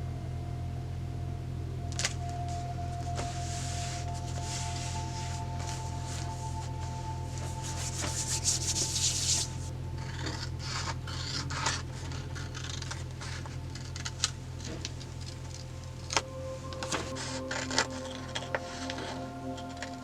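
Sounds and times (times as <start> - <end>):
soft background music: 0.0 - 20.0
hands rubbing on paper: 3.4 - 9.7.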